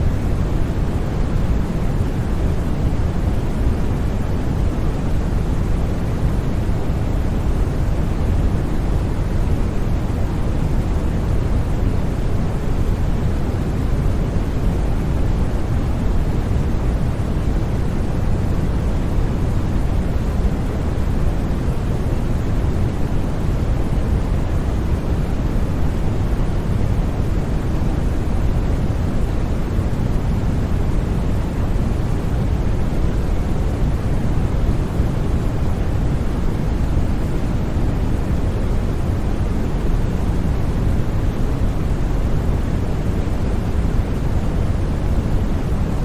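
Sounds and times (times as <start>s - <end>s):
white noise: 0.0s - 46.0s.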